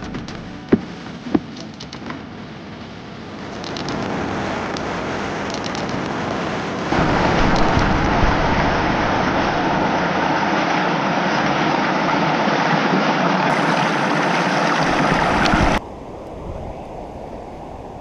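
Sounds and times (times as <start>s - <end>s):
water rushing over waterfall: 3.7s - 15.8s.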